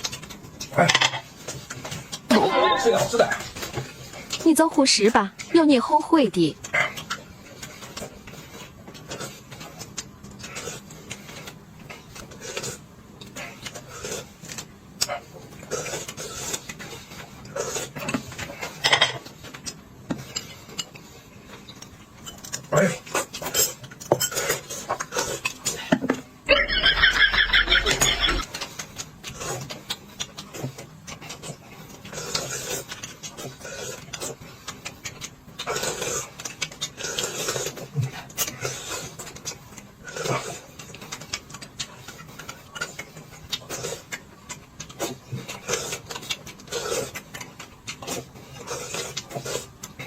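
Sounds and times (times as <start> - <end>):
chewing and crunching food: 0.0 - 50.0
chewing and mouth smacks: 28.1 - 50.0.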